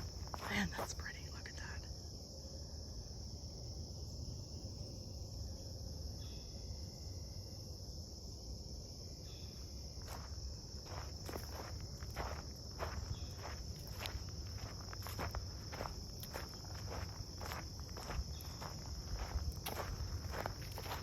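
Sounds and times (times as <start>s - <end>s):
footsteps crunching on dry ground: 0.0s - 1.2s, 9.9s - 21.0s
high-pitched insect drone: 0.0s - 21.0s.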